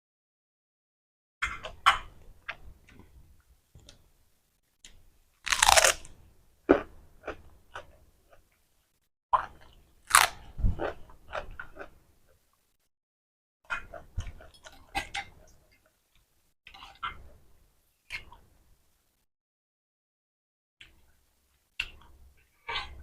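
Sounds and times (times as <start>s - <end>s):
person chewing noodles: 5.5s - 6.1s, 6.7s - 8.6s, 9.4s - 12.4s, 13.7s - 15.8s.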